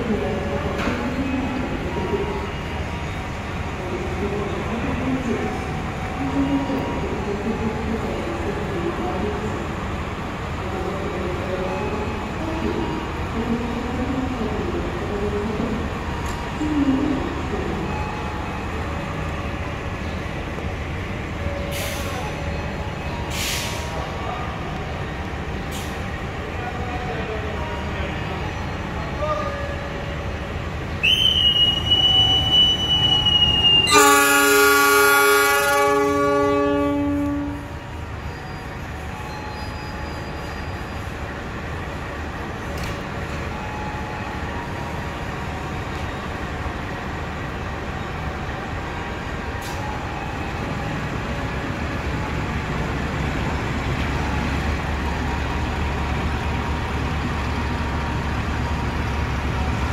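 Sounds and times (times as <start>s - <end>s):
train rumbling: 0.0s - 59.9s
whistle blowing: 31.0s - 34.6s
locomotive horn blast: 33.8s - 37.7s.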